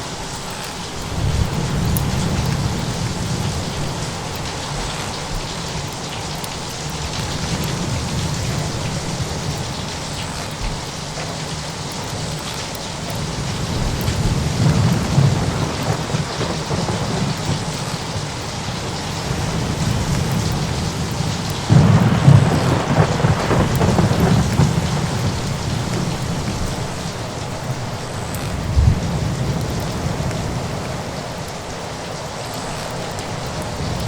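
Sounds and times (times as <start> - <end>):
steady rain: 0.0 - 34.0
thunder rumbling and cracking: 0.5 - 31.3.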